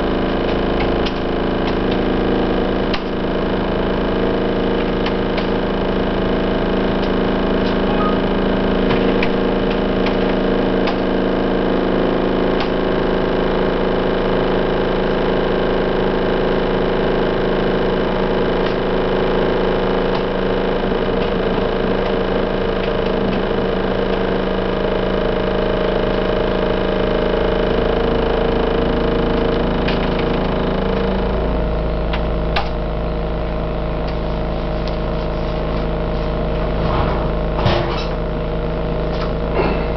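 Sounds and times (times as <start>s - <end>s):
heavy machinery engines rumbling: 34.1s - 39.9s.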